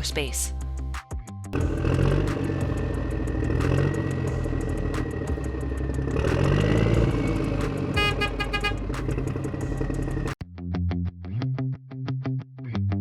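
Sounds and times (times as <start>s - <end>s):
vehicle engine running: 1.6s - 10.4s
short horn-like beeps: 7.9s - 8.9s.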